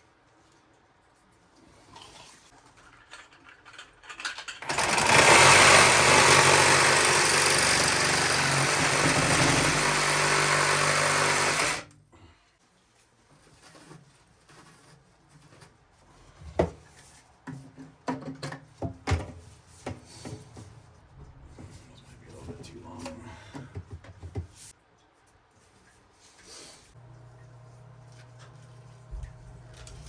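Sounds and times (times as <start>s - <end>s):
power saw cutting plastic pipe: 4.6s - 11.9s.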